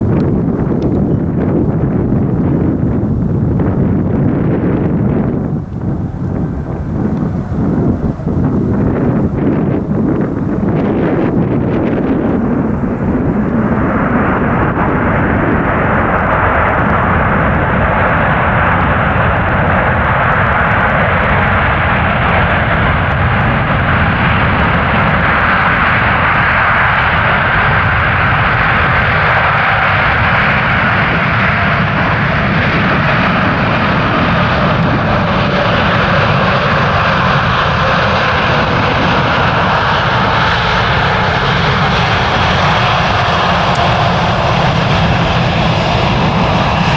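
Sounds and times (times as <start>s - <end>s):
jet engine roar: 0.0s - 46.9s.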